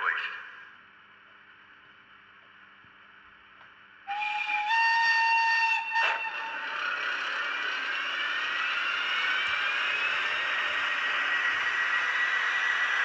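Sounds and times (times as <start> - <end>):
locomotive running hiss and whine: 3.4 - 13.0
model locomotive whistle: 4.1 - 13.0.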